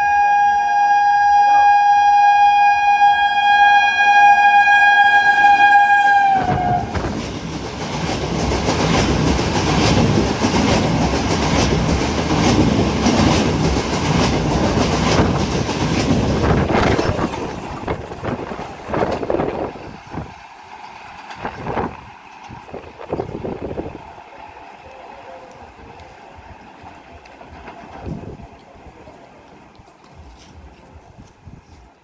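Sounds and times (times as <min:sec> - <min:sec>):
train horn blast: 0:00.0 - 0:07.1
train rumbling past: 0:00.0 - 0:32.0
wheels clattering over rail joints: 0:06.6 - 0:31.0.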